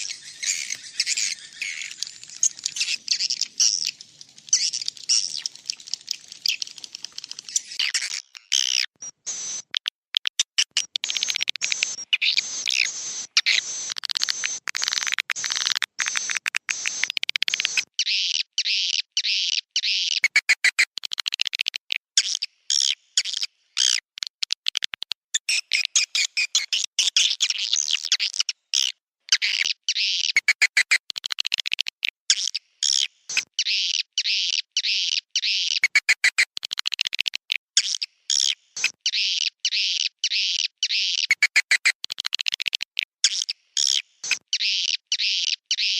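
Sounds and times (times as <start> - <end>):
swiftlets twittering chirps: 0.0 - 9.7.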